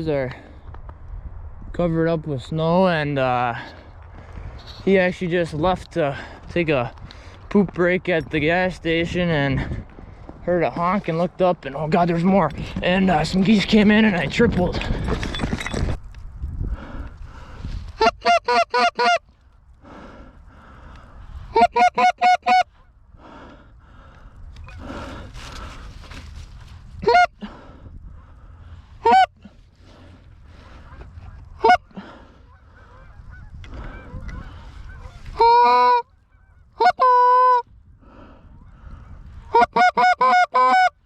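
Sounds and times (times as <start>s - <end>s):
goose honking: 18.0s - 19.2s, 21.5s - 22.9s, 27.0s - 27.3s, 29.0s - 29.5s, 30.8s - 37.7s, 39.5s - 41.0s.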